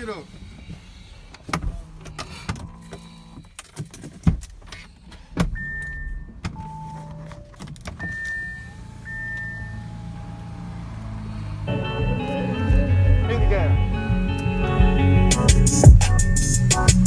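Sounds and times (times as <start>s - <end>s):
car clicks: 0.0s - 13.4s.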